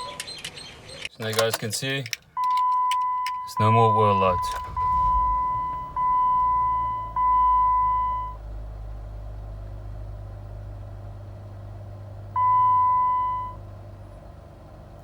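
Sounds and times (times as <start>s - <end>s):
car dashboard warning beep: 0.0s - 0.4s, 2.4s - 8.4s, 12.4s - 13.6s
low steady rumble: 2.2s - 15.0s.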